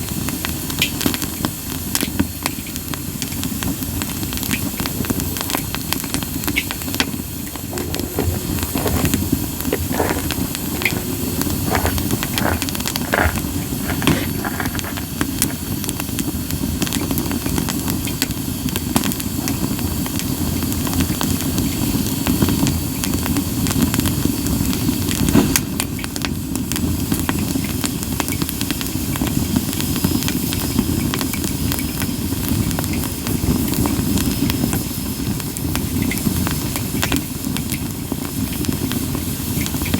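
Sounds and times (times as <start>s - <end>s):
fire crackles and pops: 0.0s - 39.9s
steam hissing from wood: 0.0s - 39.9s
low rush of flame: 2.8s - 25.8s.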